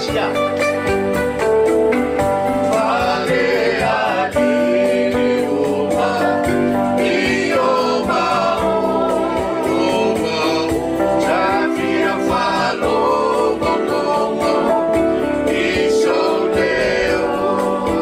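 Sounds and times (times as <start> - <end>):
instrumental accompaniment: 0.0 - 18.0
group singing in harmony: 2.2 - 18.0.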